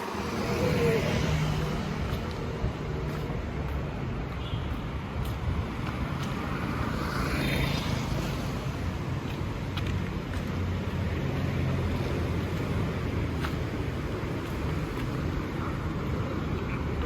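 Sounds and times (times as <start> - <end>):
low rumble of traffic: 0.0 - 17.0.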